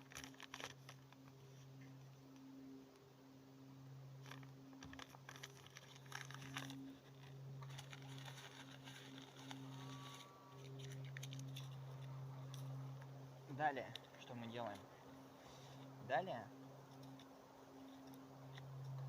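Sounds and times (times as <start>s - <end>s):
paper crumpling and rustling: 0.0s - 1.2s, 4.2s - 12.7s
steady low hum: 0.0s - 19.0s.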